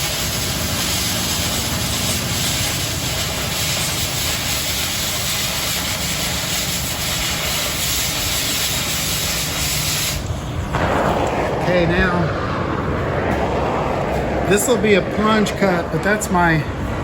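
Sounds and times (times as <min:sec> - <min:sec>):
cutting torch hissing: 0:00.0 - 0:12.5
low rumble: 0:10.2 - 0:17.0.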